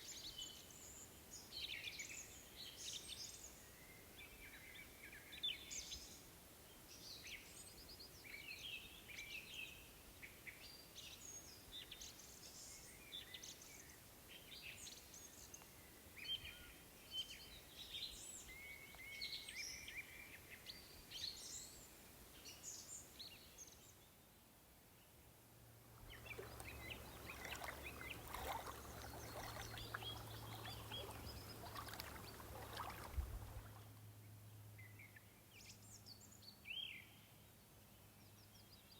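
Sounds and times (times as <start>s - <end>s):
low steady hum: 25.7s - 34.8s
small songbirds chirping: 26.0s - 33.8s.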